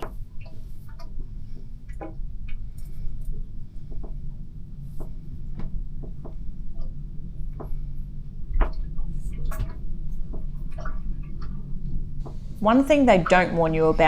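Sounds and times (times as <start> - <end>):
steady low hum: 12.2 - 14.0.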